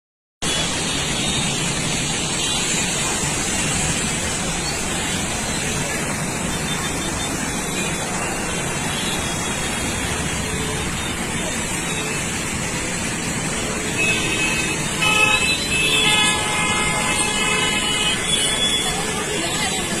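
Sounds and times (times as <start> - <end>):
steady rushing noise: 0.4 - 20.0
vehicle horns honking: 13.7 - 19.3.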